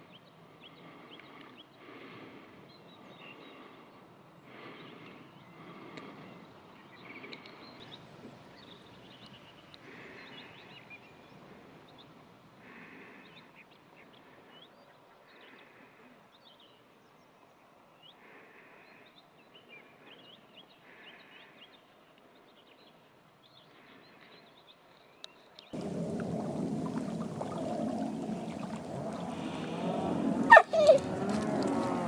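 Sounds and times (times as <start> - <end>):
harsh bird call: 26.7 - 31.8.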